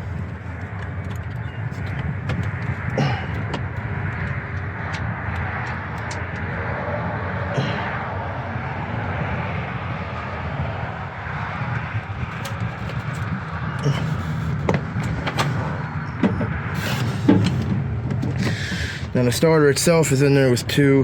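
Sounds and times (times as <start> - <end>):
low background rumble: 0.0 - 21.0.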